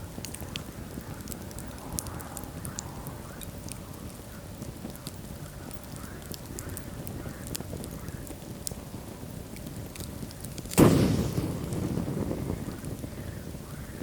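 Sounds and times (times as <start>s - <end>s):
fire crackling and popping: 0.0s - 14.0s
low rumble of flames: 0.0s - 14.0s.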